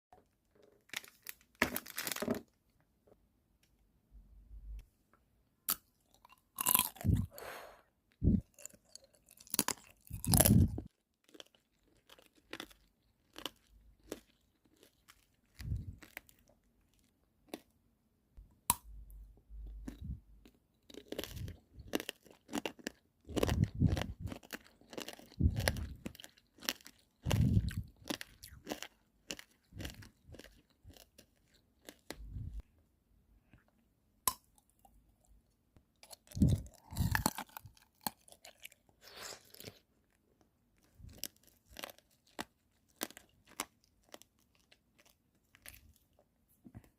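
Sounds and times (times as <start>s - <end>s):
candy shell crunching: 0.5s - 2.6s, 8.2s - 17.7s, 18.8s - 32.6s, 36.0s - 40.2s, 40.8s - 46.2s.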